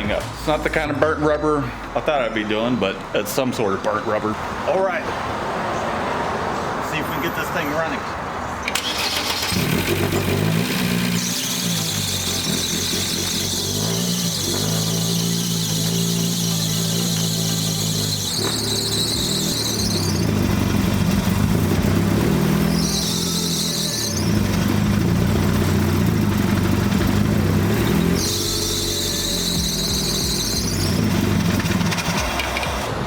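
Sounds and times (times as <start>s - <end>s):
drive belt squealing: 8.6s - 33.0s
car engine running: 8.8s - 33.0s.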